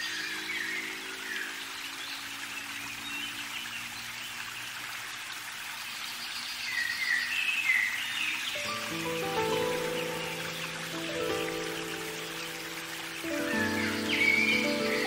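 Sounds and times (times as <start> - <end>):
steady outdoor hiss: 0.0 - 15.0
songbird whistling chirps: 6.0 - 15.0
background music: 8.6 - 15.0.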